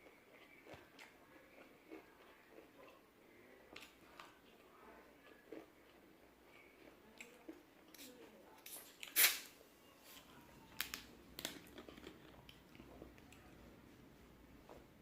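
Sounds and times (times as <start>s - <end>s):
crunchy chewing of fried chicken: 0.0s - 14.0s.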